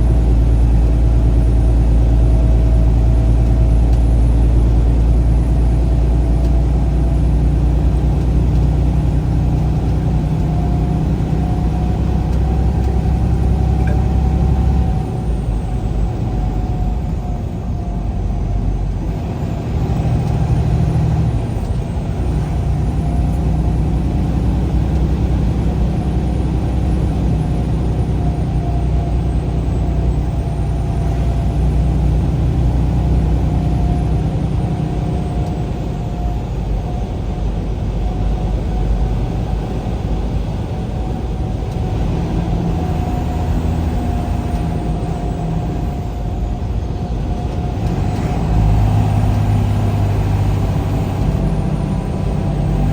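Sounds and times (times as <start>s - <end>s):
engine and road rumble: 0.0s - 52.9s
steady whine: 10.5s - 18.9s.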